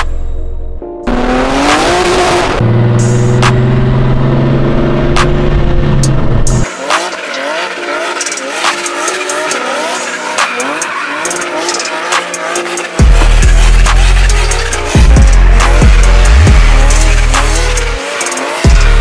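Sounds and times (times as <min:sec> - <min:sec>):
car engine revving: 0:01.1 - 0:19.0
tyres squealing: 0:06.9 - 0:18.4.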